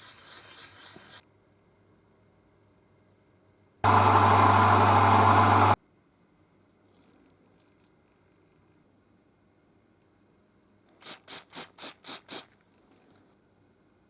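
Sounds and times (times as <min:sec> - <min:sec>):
loud humming machine: 0:03.8 - 0:05.8.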